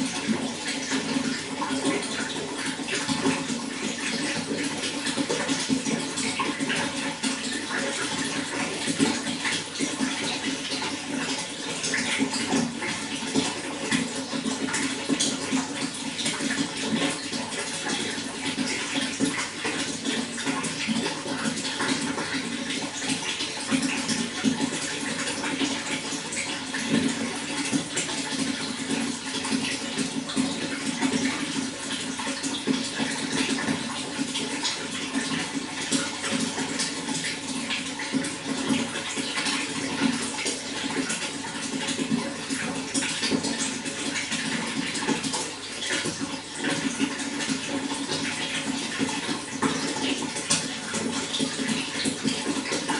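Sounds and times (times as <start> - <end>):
running water splashing: 0.0 - 52.9.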